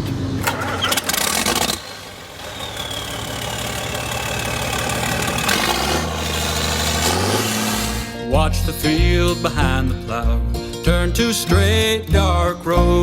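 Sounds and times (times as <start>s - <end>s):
engine rattly knocks: 0.0s - 8.2s
tractor engines running: 0.0s - 8.4s.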